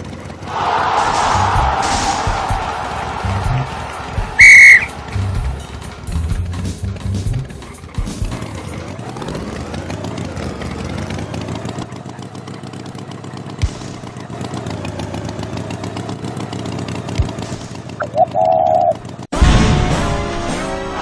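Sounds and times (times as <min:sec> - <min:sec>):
engine running steadily: 0:00.0 - 0:19.3
low thumps: 0:00.8 - 0:08.5.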